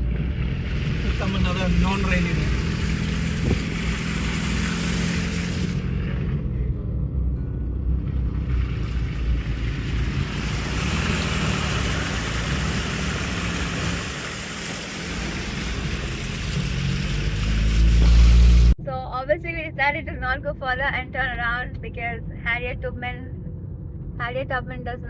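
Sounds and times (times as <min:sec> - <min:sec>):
wind or tyre rush: 0:00.0 - 0:07.2, 0:08.0 - 0:18.8
car engine and road noise: 0:00.0 - 0:25.0
loud low rumble: 0:00.0 - 0:25.0.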